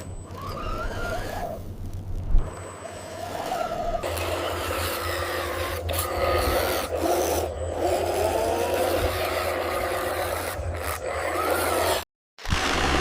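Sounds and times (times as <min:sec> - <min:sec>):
small electric motors whining: 0:00.0 - 0:12.1
rasping scraping noise: 0:02.8 - 0:12.1.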